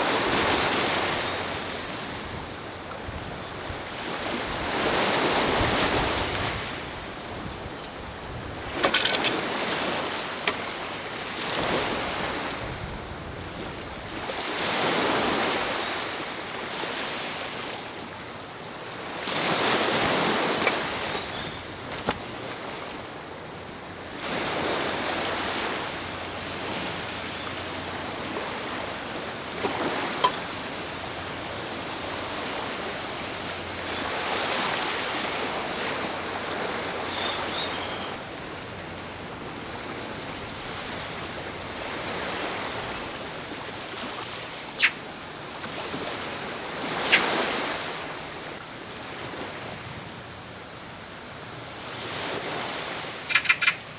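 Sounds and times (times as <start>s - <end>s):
sea waves washing onto shore: 0.0s - 50.1s
wind: 0.0s - 53.9s.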